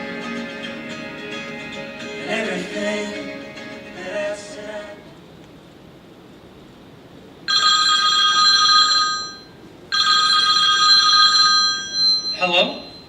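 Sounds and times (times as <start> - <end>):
telephone ringing: 7.5 - 13.0.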